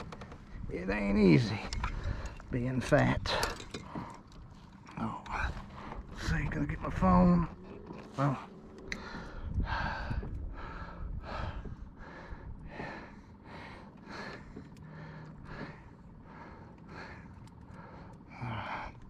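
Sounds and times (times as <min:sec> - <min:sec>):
man breathing heavily: 0:01.8 - 0:02.5, 0:03.2 - 0:06.5, 0:07.5 - 0:19.0.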